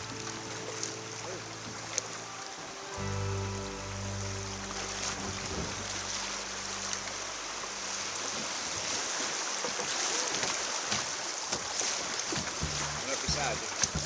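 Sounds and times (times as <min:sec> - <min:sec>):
background music: 0:00.0 - 0:08.0, 0:12.6 - 0:14.0
creek water rushing: 0:00.0 - 0:14.0.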